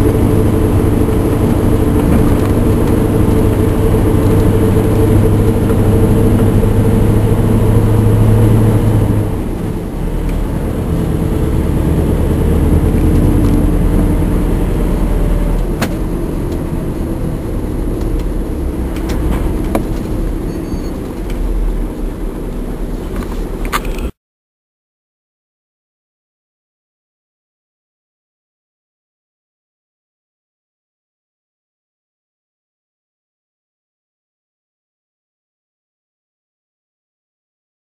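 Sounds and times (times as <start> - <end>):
diesel truck engine labouring: 0.0 - 24.2.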